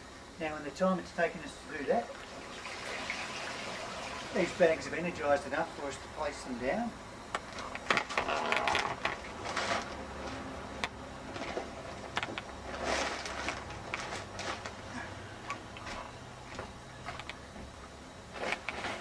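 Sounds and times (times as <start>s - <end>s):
flood bags rustling and knocking: 12.6s - 15.0s.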